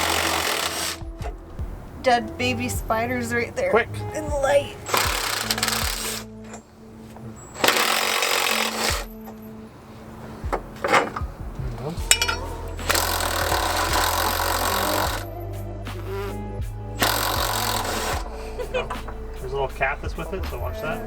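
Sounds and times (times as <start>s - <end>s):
power tool on bolts: 0.0s - 1.4s, 4.9s - 6.6s, 7.6s - 9.4s, 12.1s - 15.3s, 17.0s - 18.4s
background music: 0.0s - 21.0s.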